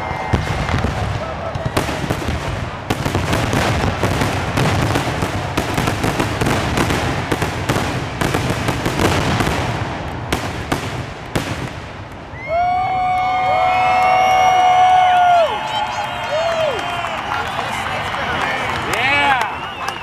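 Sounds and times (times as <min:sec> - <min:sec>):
fireworks bangs: 0:00.0 - 0:13.3.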